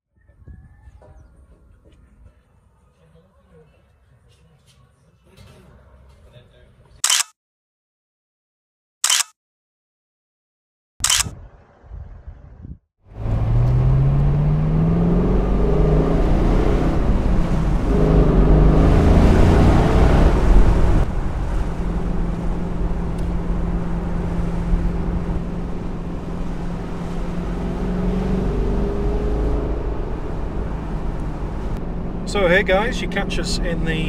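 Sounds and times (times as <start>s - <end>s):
car engine accelerating: 13.1s - 34.0s.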